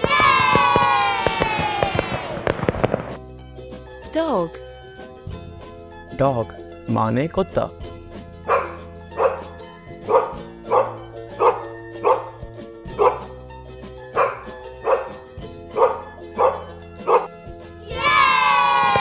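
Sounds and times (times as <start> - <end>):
background music: 0.0 - 19.0
dog barking: 8.5 - 9.5, 10.1 - 13.3, 14.2 - 15.2, 15.8 - 17.3.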